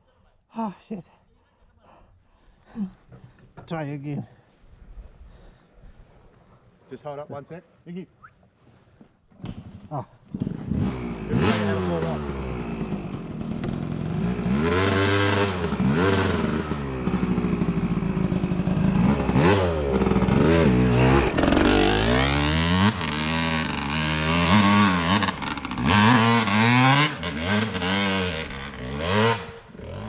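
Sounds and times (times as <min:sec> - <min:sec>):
dirt bike engine revving: 0:10.3 - 0:30.0.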